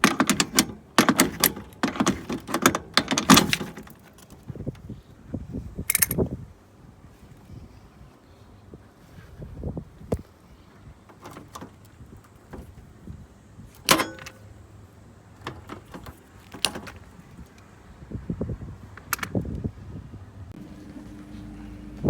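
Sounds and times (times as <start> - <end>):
metal parts and tools clanking: 0.0 - 4.4, 5.9 - 6.2, 13.8 - 14.5, 15.4 - 17.3.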